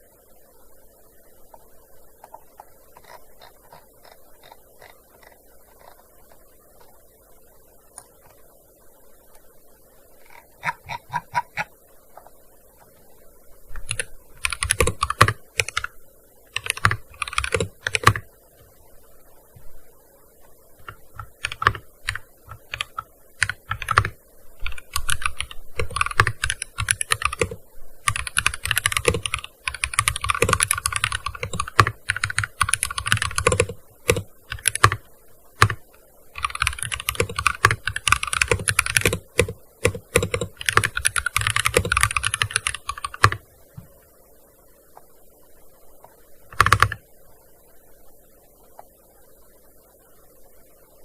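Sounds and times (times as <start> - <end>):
rapid keyboard typing: 2.3 - 6.9, 10.2 - 11.7, 13.7 - 18.3, 20.8 - 43.4, 46.5 - 47.0.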